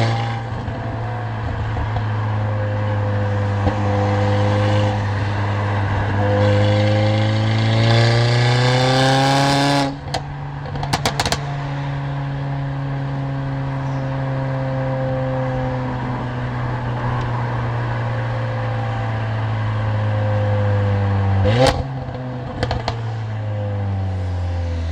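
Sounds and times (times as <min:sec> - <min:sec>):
car engine and loud exhaust: 0:00.0 - 0:24.9
sharp exhaust cracks: 0:09.8 - 0:11.8.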